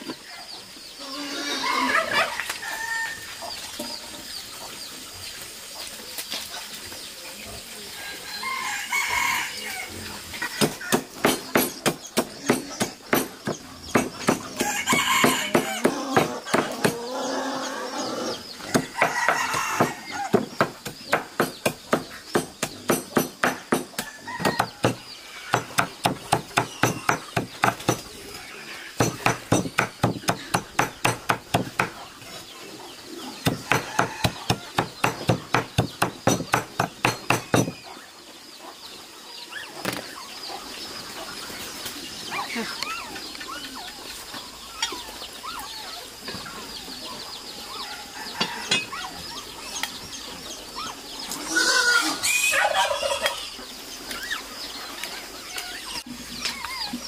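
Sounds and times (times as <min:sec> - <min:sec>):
chickens clucking and squawking: 0:00.0 - 0:57.0
sharp rhythmic knocks: 0:10.6 - 0:14.6, 0:15.2 - 0:17.0, 0:18.7 - 0:28.2, 0:29.0 - 0:32.0, 0:33.4 - 0:37.8.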